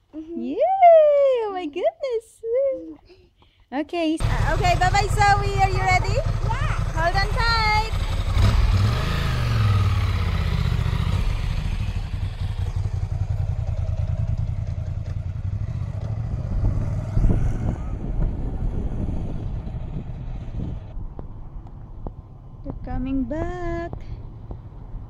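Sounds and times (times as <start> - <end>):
motorcycle engine pulling away: 4.2 - 21.0.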